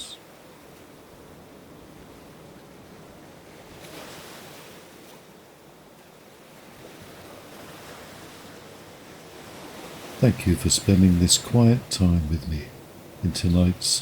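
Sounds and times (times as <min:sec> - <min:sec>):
ocean waves washing: 0:06.4 - 0:14.0.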